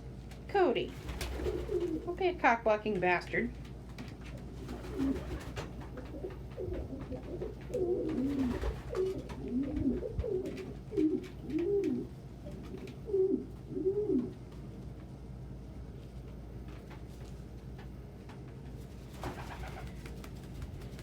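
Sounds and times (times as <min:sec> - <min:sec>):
pigeons cooing: 0:01.1 - 0:02.1, 0:04.6 - 0:14.4, 0:19.2 - 0:20.1.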